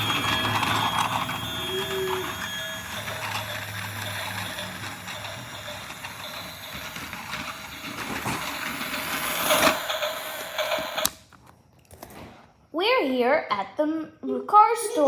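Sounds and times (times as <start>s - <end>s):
toy train running: 0.0s - 11.2s.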